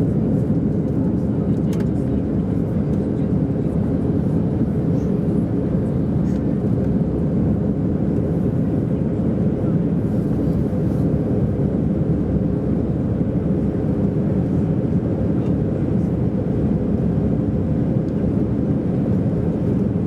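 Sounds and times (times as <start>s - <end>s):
airplane engines droning: 0.0s - 20.0s
rushing air in cabin: 9.8s - 11.6s.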